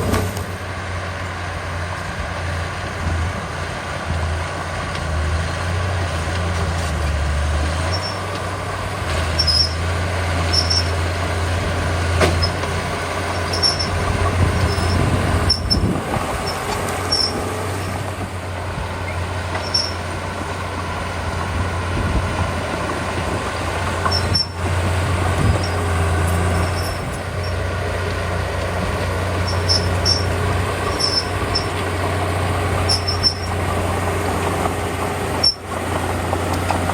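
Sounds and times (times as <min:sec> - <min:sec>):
bulldozer diesel engine running: 0:00.0 - 0:36.9
short high-pitched squeaks: 0:07.8 - 0:08.3, 0:09.3 - 0:09.8, 0:10.4 - 0:11.0, 0:13.3 - 0:17.5, 0:19.0 - 0:20.1, 0:24.0 - 0:24.7, 0:25.5 - 0:27.6, 0:29.4 - 0:31.8, 0:32.8 - 0:33.7, 0:35.4 - 0:35.7.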